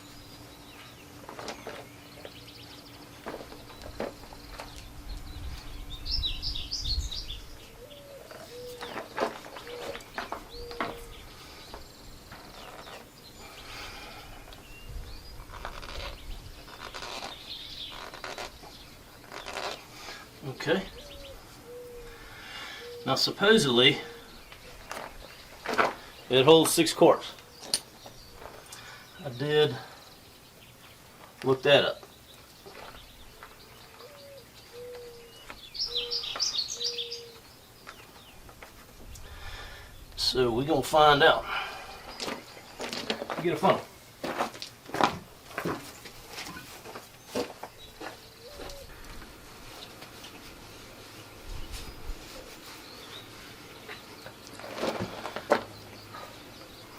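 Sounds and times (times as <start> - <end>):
faint bird chirps: 0.0 - 26.4, 32.0 - 38.5
outdoor background noise: 0.0 - 56.9
dove cooing: 7.6 - 11.4, 20.8 - 23.2, 33.8 - 37.4, 48.3 - 49.5.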